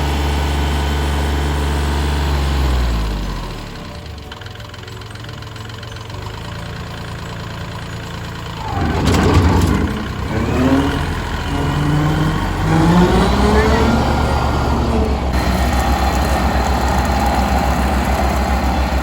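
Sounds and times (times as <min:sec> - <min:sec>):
tractor diesel engine revving: 0:00.0 - 0:19.0
brief clatter: 0:08.6 - 0:11.7.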